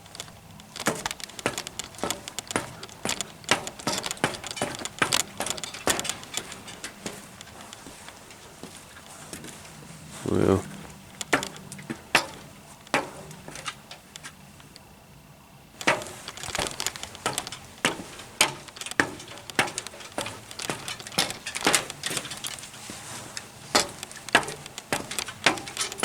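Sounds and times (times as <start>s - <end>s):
footsteps crunching on a trail: 0.0s - 14.8s, 15.8s - 26.0s.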